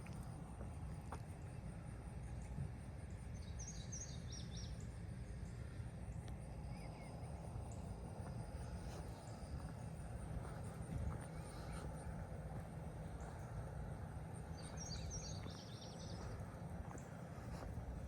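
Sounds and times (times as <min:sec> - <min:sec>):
faint high whine: 0:00.0 - 0:18.0
bird chirps: 0:14.5 - 0:16.4.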